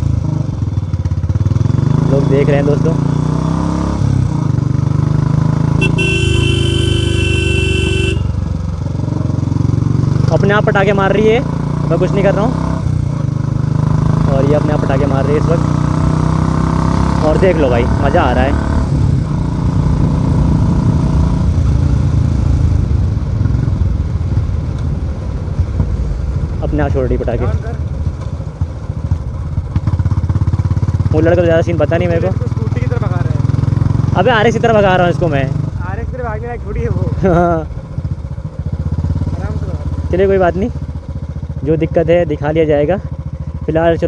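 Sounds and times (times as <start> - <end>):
motorcycle engine with loud exhaust: 0.0 - 44.0
vehicle horn: 5.8 - 8.6
motorcycle engine thumping: 5.8 - 8.8, 24.4 - 26.6, 27.5 - 31.1
exhaust popping: 23.8 - 31.5.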